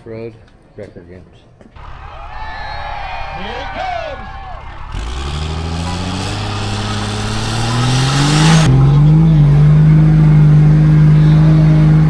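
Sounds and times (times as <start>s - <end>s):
vehicle engine revving: 4.5s - 12.0s
hiss: 5.0s - 8.7s.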